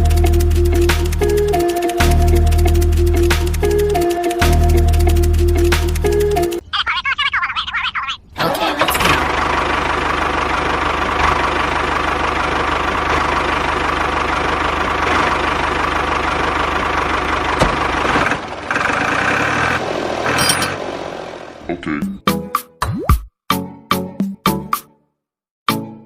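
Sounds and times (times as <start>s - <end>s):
engine idling with knocking beat: 0.0s - 6.6s, 9.0s - 19.4s.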